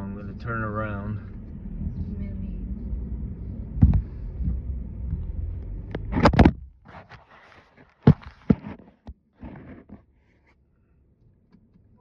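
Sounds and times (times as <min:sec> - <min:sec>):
car cabin rumble: 0:00.0 - 0:07.0
loud rustling thud: 0:06.0 - 0:08.9.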